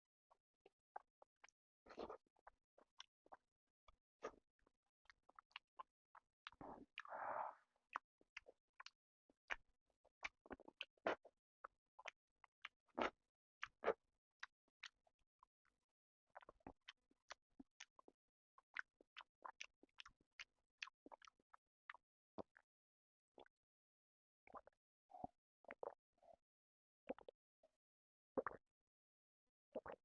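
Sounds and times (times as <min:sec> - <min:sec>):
person chewing food: 0:00.9 - 0:22.6, 0:27.1 - 0:27.4, 0:28.4 - 0:28.6, 0:29.8 - 0:30.0.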